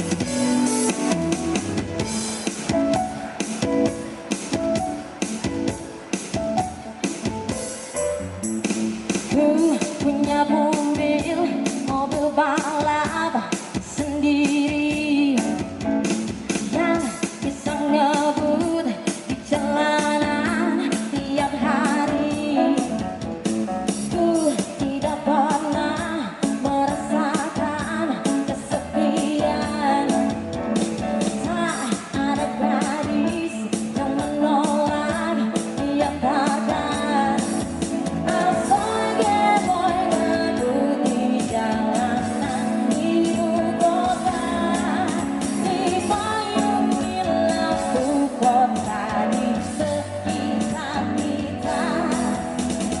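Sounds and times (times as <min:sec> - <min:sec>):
live pop-rock band: 0:00.0 - 0:53.0
person singing: 0:09.2 - 0:15.6, 0:31.2 - 0:53.0.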